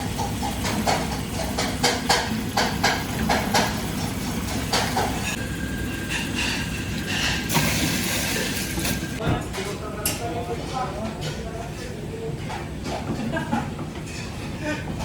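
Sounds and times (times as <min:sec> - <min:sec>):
utensils and cookware clinking: 0:00.0 - 0:10.3.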